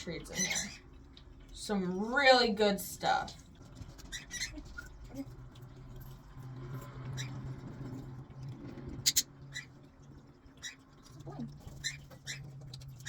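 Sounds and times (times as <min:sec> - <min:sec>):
parrots chirping: 0:00.2 - 0:00.9, 0:04.0 - 0:05.0, 0:07.1 - 0:07.6, 0:09.0 - 0:13.0.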